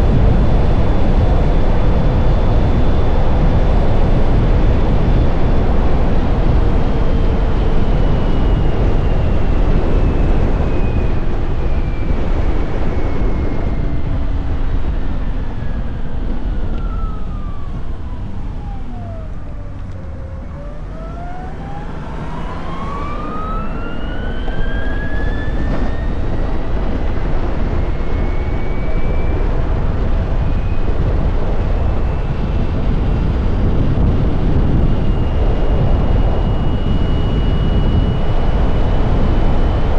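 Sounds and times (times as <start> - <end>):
wind and road noise: 0.0 - 39.9
electric motor whine: 0.2 - 39.9.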